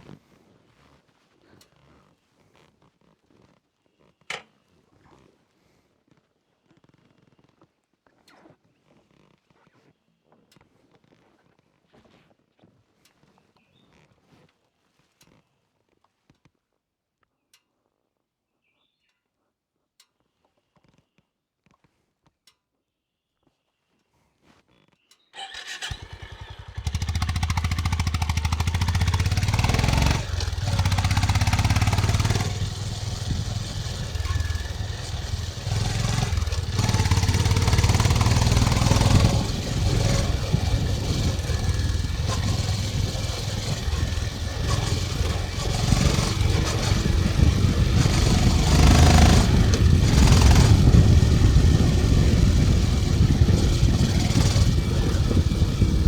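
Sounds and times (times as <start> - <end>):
motorcycle engine running: 25.5 - 56.0.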